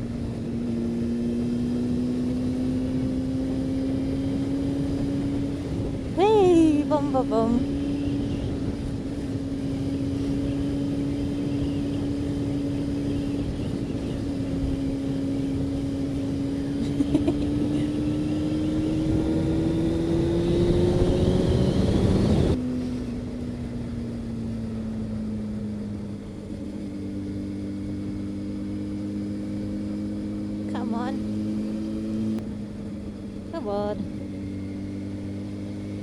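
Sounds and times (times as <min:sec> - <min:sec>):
heavy wind noise: 0:00.0 - 0:24.0
motorcycle engine running: 0:00.0 - 0:36.0.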